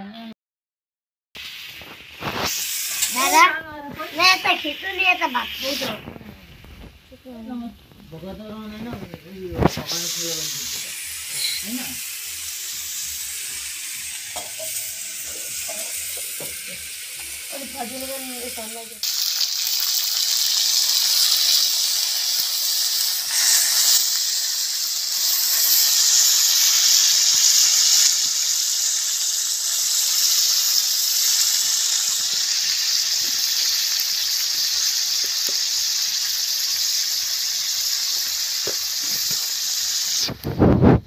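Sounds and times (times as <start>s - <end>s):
curry sizzling in pan: 1.4s - 41.0s.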